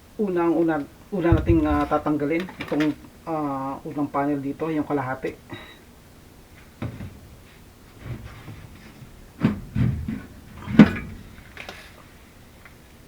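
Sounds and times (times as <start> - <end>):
sheet metal clunks and rattles: 1.2 - 2.9, 8.0 - 11.9.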